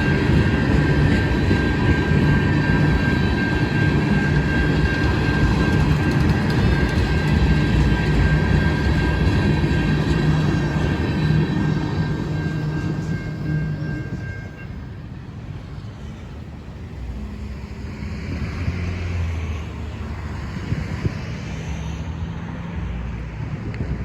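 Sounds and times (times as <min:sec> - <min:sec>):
vehicle engine drone: 0:00.0 - 0:24.0.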